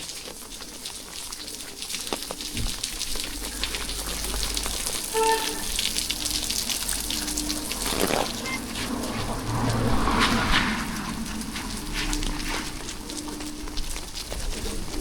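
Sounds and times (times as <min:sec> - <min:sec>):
rain pattering on hard surfaces: 0:00.0 - 0:15.0
short tone: 0:05.1 - 0:05.7, 0:07.6 - 0:09.0.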